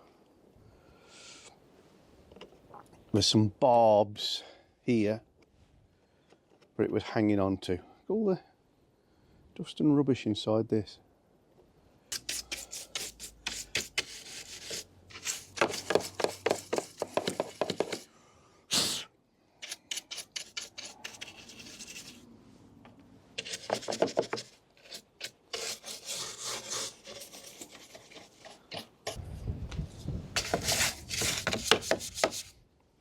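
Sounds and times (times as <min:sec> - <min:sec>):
rubbing and scraping on plastic: 0:12.1 - 0:18.1, 0:19.6 - 0:22.2, 0:23.4 - 0:29.2, 0:30.3 - 0:32.6.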